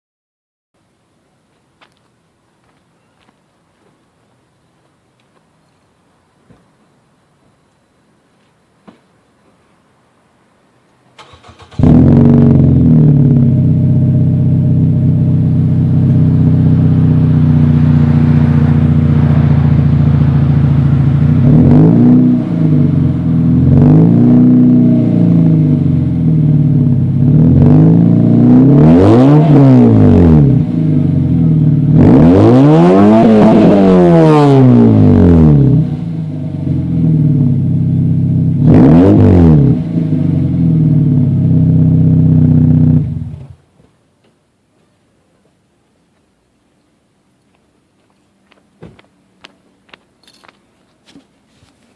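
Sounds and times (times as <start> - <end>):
car engine idling and revving: 11.2 - 43.6.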